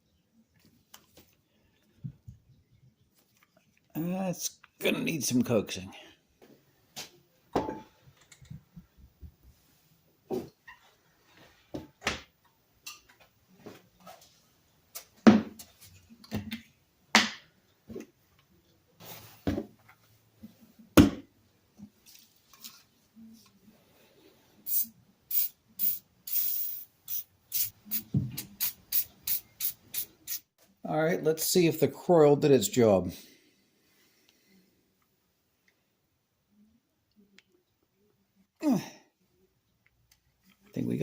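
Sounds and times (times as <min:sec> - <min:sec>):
short hissing oil sprays: 0:24.7 - 0:30.5.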